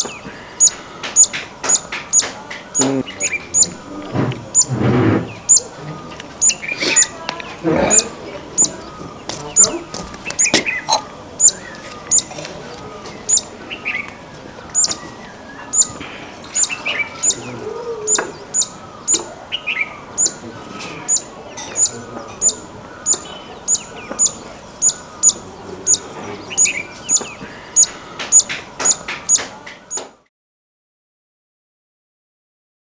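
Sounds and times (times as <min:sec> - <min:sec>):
other birds calling softly: 0:00.0 - 0:30.3.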